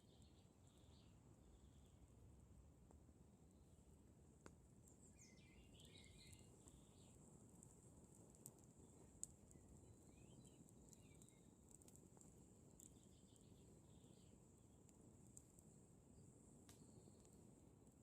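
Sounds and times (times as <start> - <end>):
faint bird chirps: 0.0 - 2.1, 4.8 - 7.3, 9.5 - 11.5, 12.8 - 14.4
campfire crackling and popping: 4.3 - 5.0, 5.7 - 18.0.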